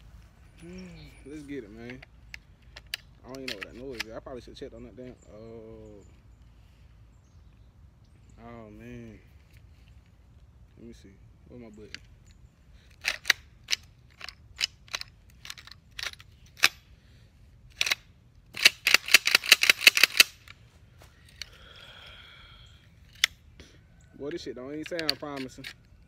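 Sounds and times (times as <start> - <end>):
shotgun action clicking: 1.8 - 4.2, 11.9 - 16.8, 17.7 - 20.6, 23.1 - 23.4, 24.8 - 26.0.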